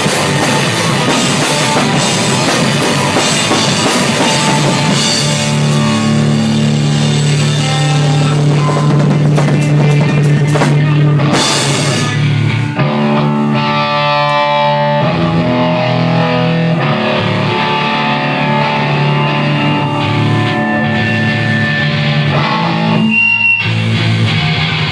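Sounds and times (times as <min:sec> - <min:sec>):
drum kit with crashing cymbals: 0:00.0 - 0:12.5
distorted electric guitar: 0:00.0 - 0:24.9.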